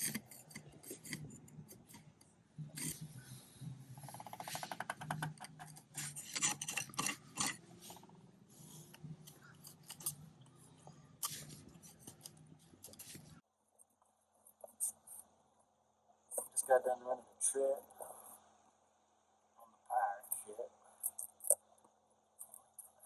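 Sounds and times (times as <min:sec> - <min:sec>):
hand tool scraping wood: 0:00.0 - 0:02.1.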